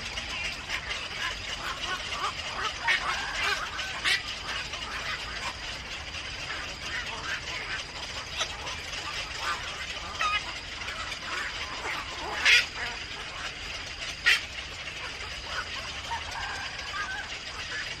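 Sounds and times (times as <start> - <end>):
birds chirping: 0.0 - 18.0
harsh bird calls: 0.0 - 18.0.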